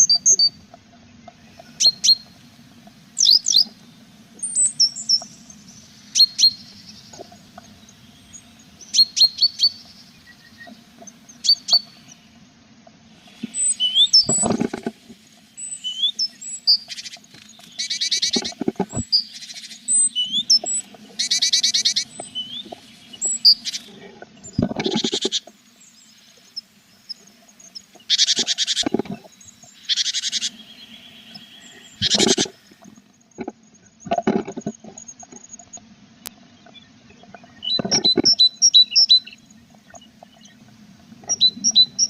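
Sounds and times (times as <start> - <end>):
thumps and scrapes in nest box: 14.2 - 15.2, 18.4 - 19.2
buzzy begging calls: 15.6 - 25.5, 27.8 - 33.0
nestlings chirping: 15.6 - 33.0.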